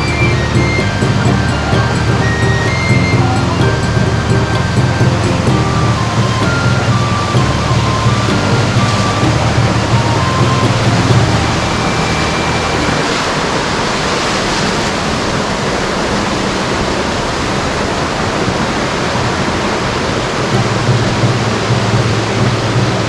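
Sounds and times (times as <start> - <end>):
low drone: 0.0 - 13.8
waterfall rushing: 0.0 - 23.0.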